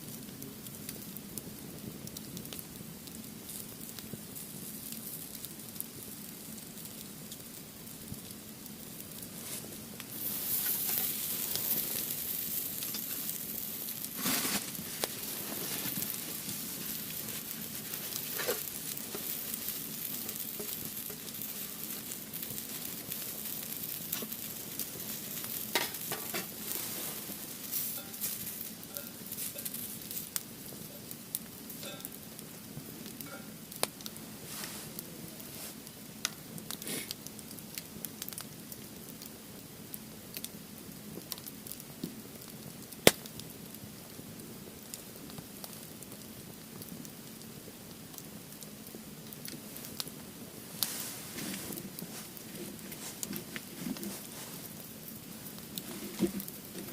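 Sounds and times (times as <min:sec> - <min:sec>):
firewood burning with crackles: 0:00.0 - 0:56.9.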